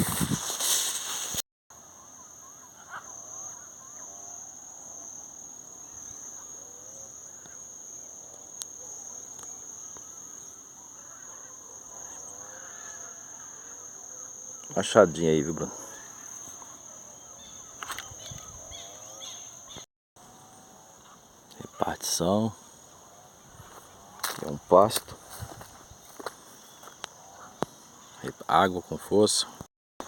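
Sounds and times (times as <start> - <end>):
insects buzzing: 0.1 - 29.7
faint bird calls: 9.9 - 19.8.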